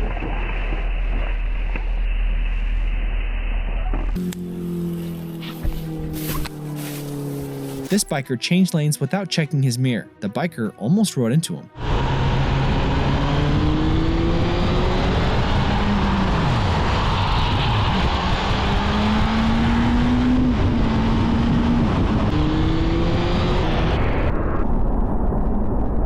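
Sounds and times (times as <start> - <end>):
motorcycle engine running: 3.5 - 8.0
heavy wind noise: 11.8 - 26.0.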